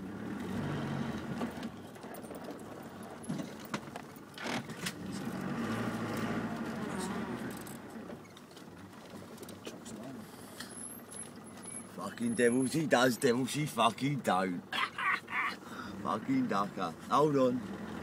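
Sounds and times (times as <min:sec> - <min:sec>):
car engine driving off-road: 0:00.0 - 0:18.0
body and loose gear rattling: 0:01.1 - 0:13.2.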